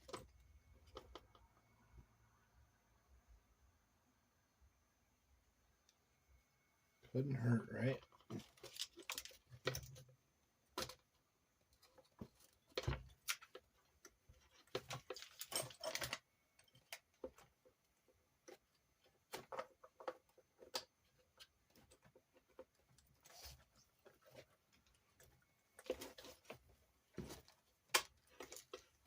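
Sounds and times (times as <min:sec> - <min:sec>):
small metal parts clicking: 0:14.4 - 0:17.4.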